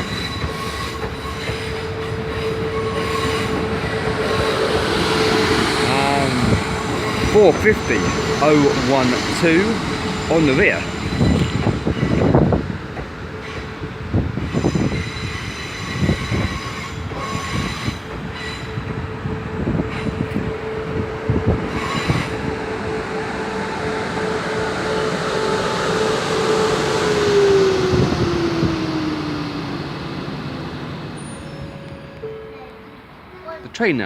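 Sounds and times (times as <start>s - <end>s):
electric train whine: 0.0s - 33.5s.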